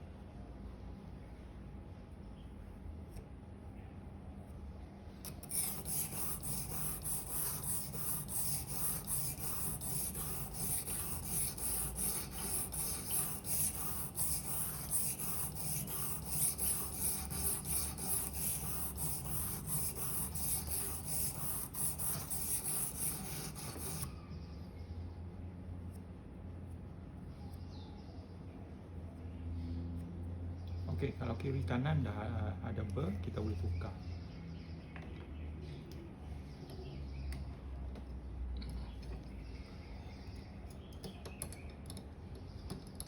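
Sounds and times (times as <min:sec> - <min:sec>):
knife scraping on whetstone: 0:05.3 - 0:24.1.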